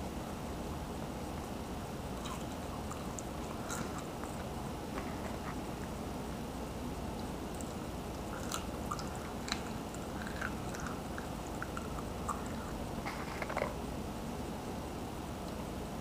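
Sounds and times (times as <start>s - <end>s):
steady hiss: 0.0s - 16.0s
person chewing: 2.2s - 5.9s, 7.2s - 13.8s.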